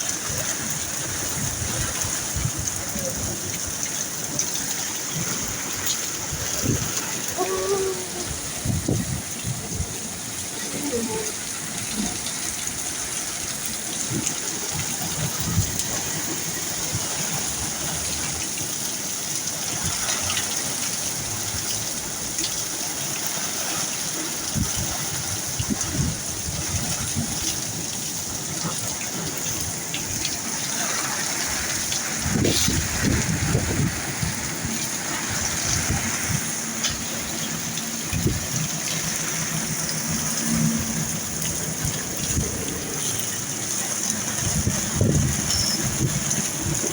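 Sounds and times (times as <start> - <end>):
heavy rain pouring: 0.0 - 46.9
water gushing and running off: 0.0 - 46.9
low thunder rumbles: 0.2 - 17.3, 31.3 - 46.9.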